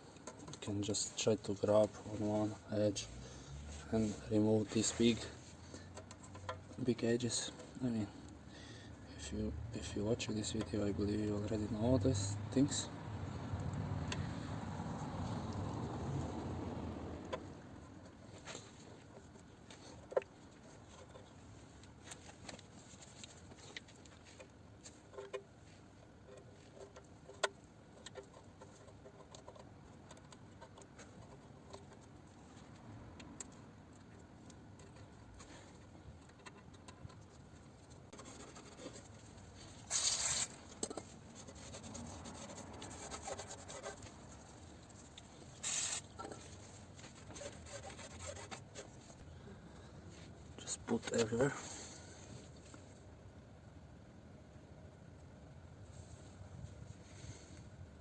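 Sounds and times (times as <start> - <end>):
scraping sealant off metal: 38.1 - 44.6, 45.5 - 49.2.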